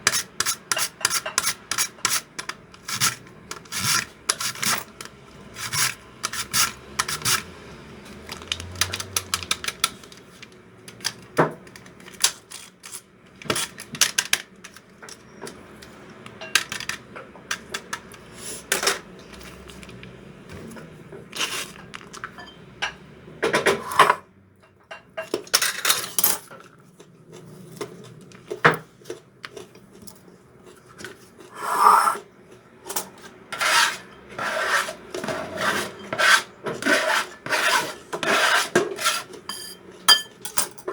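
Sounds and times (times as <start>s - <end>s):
utensils and dishes clinking: 11.8s - 30.2s, 38.2s - 40.9s.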